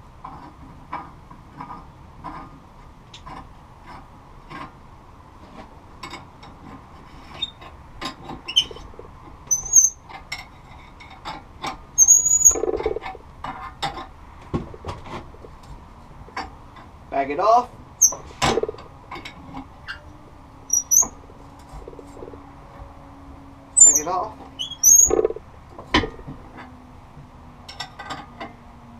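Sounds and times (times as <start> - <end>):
short high squeaks: 7.3 - 7.6, 8.5 - 8.9, 9.5 - 10.1, 12.0 - 13.0, 18.0 - 18.3, 19.8 - 20.1, 20.7 - 21.2, 23.8 - 25.4.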